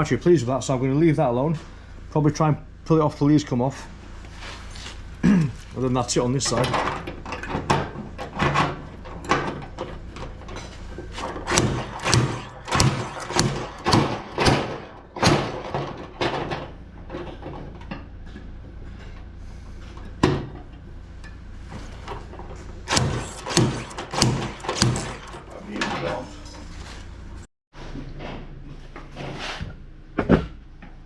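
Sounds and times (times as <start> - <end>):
slide hammer metal knocks: 11.4 - 14.9.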